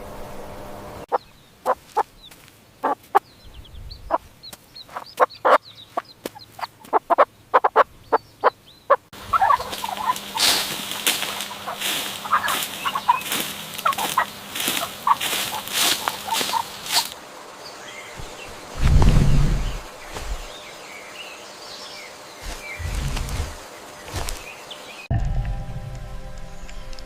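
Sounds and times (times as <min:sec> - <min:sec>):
chickens clucking: 0:01.1 - 0:17.2
chicks peeping: 0:01.1 - 0:17.2.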